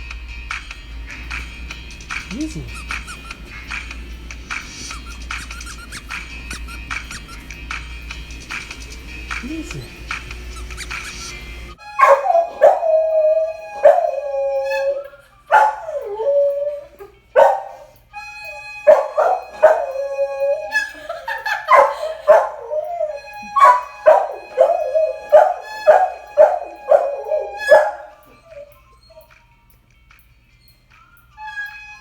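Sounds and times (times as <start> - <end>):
background music: 0.0 - 32.0
young dog howling and barking: 12.0 - 18.0, 18.8 - 29.3.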